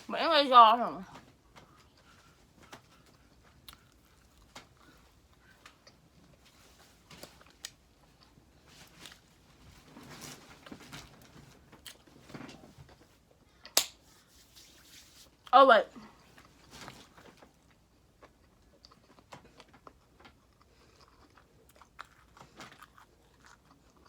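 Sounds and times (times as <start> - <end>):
person chewing and eating: 1.6 - 9.9, 16.2 - 24.0.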